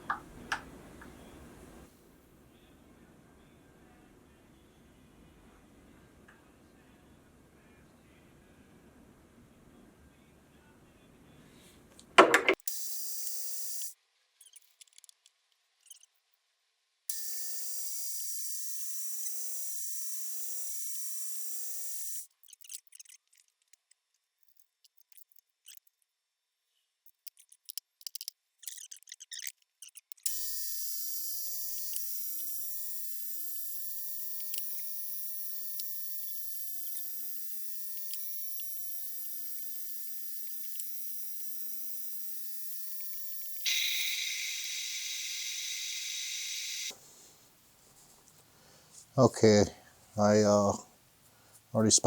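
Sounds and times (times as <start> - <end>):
faint metal clicks and scrapes: 14.4 - 16.2, 22.3 - 26.1, 26.7 - 30.2
high-pitched machine hiss: 17.1 - 22.2, 30.3 - 47.0.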